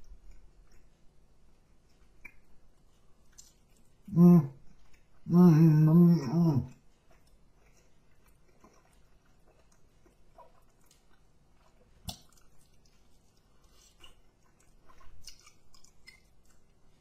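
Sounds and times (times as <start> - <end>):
person chewing: 0.0 - 17.0
person humming: 4.1 - 4.6, 5.3 - 6.7.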